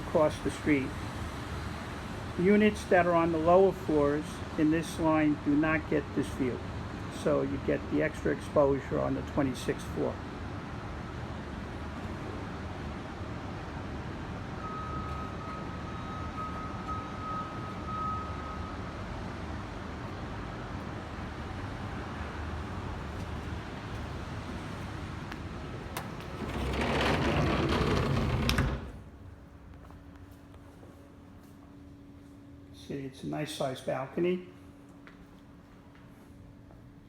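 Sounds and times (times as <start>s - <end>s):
indoor hum: 19.5s - 33.2s
sliding door shutting: 24.6s - 29.3s.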